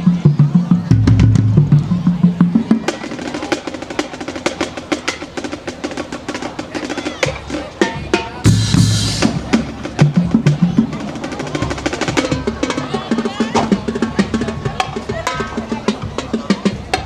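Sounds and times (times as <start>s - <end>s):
rapid snare drum strikes: 0.0s - 17.0s
bass drums: 0.1s - 2.7s, 8.4s - 17.0s.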